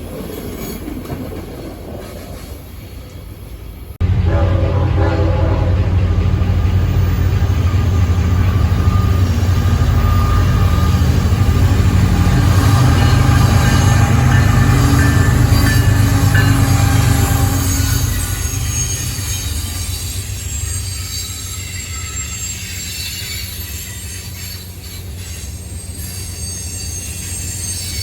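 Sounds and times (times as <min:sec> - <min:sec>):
train wheels rumbling on rails: 0:00.0 - 0:28.0
high-pitched wheel squeals: 0:06.5 - 0:28.0.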